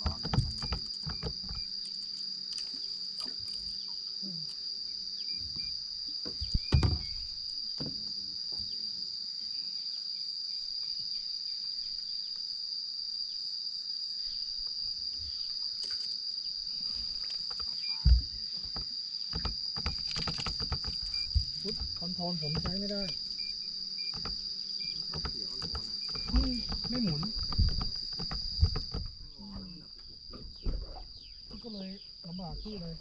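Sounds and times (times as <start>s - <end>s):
dull thumps: 0.0s - 1.7s, 5.5s - 8.0s, 17.5s - 31.6s
insects trilling: 0.0s - 33.0s.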